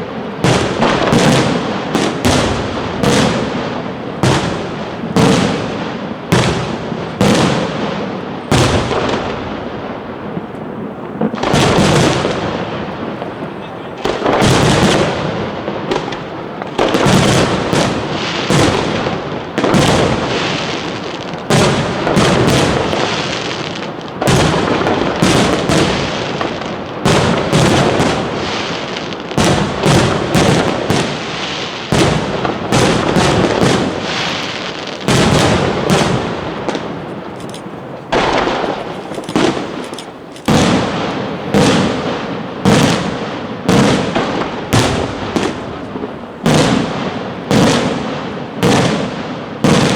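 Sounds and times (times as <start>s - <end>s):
firework shells bursting: 10.4s - 46.9s.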